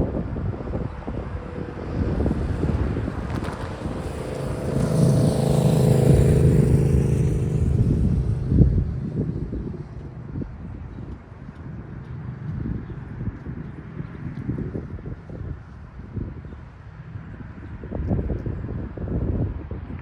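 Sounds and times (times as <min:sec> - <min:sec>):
train engine hum: 0:00.9 - 0:13.7
freight train rolling: 0:02.4 - 0:10.8.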